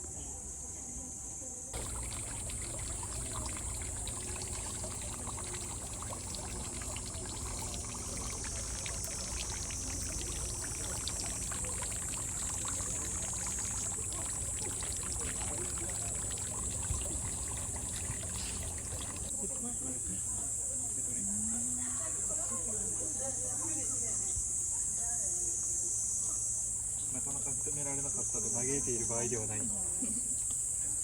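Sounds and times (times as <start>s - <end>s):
water pouring and trickling: 1.7s - 19.4s
small splashing ticks: 1.8s - 19.3s.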